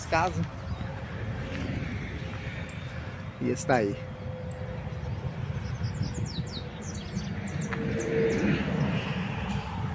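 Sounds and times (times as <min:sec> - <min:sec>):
highway traffic rumble: 0:00.0 - 0:09.9
bird chirping: 0:00.1 - 0:01.1, 0:04.0 - 0:09.8.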